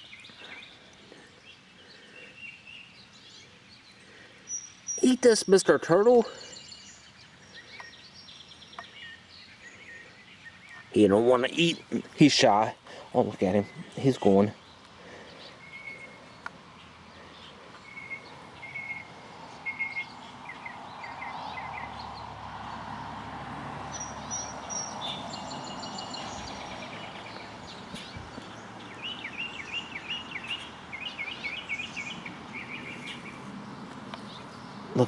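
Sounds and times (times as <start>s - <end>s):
birds singing: 0.0s - 35.0s
vehicle passing: 15.0s - 35.0s.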